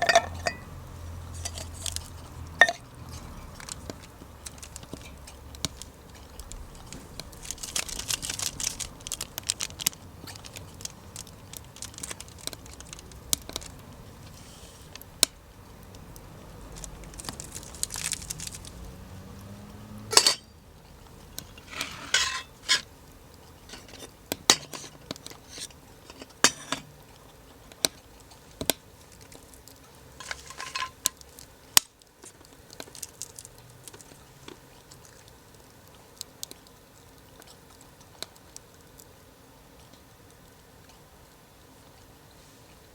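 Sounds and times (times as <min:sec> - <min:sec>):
metal cookware clinking: 0:00.0 - 0:02.0, 0:02.6 - 0:02.8, 0:20.1 - 0:20.6, 0:21.7 - 0:22.8, 0:30.2 - 0:31.0
rustling or crinkling: 0:00.0 - 0:39.2
wood fire crackling and popping: 0:00.0 - 0:39.2.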